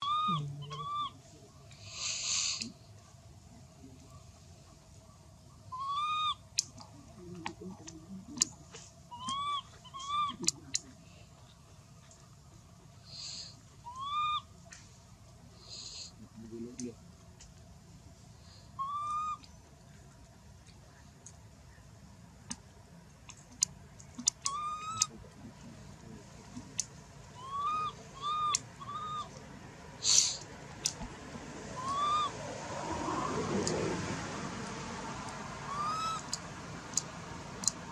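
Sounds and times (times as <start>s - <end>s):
baby monkey crying: 0.0s - 1.2s, 5.7s - 6.4s, 9.1s - 10.6s, 13.8s - 14.5s, 18.8s - 19.4s, 24.3s - 25.1s, 27.4s - 29.4s, 31.7s - 32.4s, 35.6s - 36.4s
sharp clicks: 23.3s - 25.2s, 30.7s - 31.1s, 36.2s - 37.9s.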